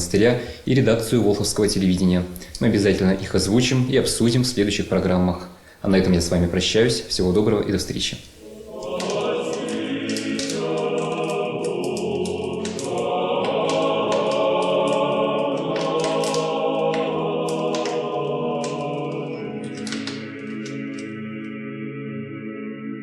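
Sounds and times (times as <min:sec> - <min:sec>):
choir singing sustained chords: 0:08.4 - 0:23.0.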